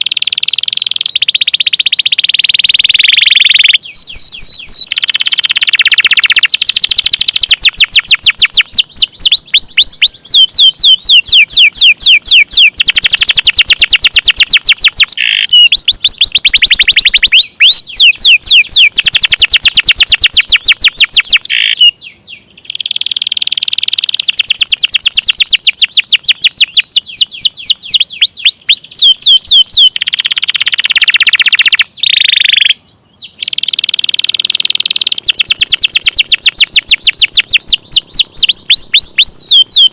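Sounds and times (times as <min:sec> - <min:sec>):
canaries trilling: 0:14.3 - 0:19.1, 0:20.0 - 0:22.9.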